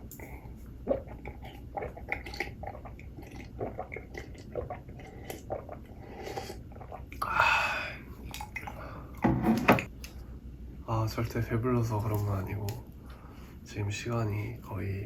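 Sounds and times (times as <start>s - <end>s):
chewing food: 0.0s - 7.2s
wet mouth clicks: 0.0s - 7.2s.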